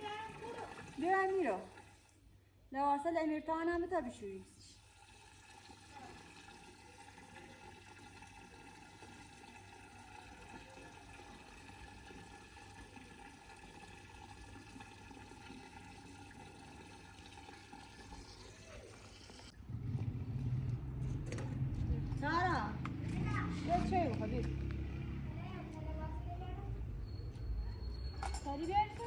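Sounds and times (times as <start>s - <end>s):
faint running water pouring: 0.0s - 2.4s, 4.0s - 19.5s.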